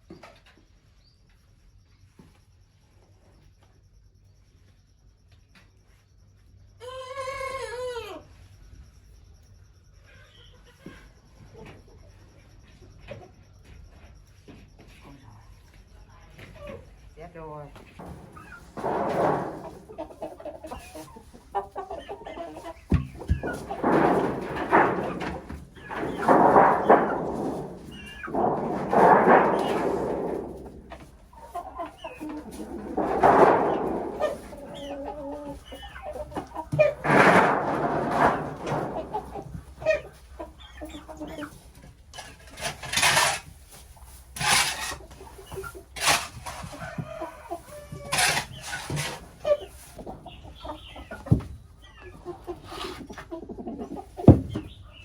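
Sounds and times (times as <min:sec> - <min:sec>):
chickens clucking: 0:06.8 - 0:08.5, 0:09.9 - 0:55.0
rustling noise: 0:17.8 - 0:40.6
dull thumps: 0:17.9 - 0:20.8, 0:22.7 - 0:35.0, 0:54.2 - 0:54.8.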